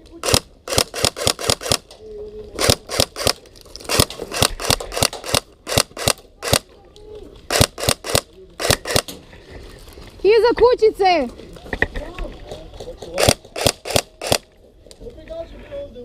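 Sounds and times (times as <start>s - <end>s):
airsoft guns firing: 0.2s - 1.9s, 2.6s - 6.7s, 7.5s - 9.2s, 13.2s - 14.5s.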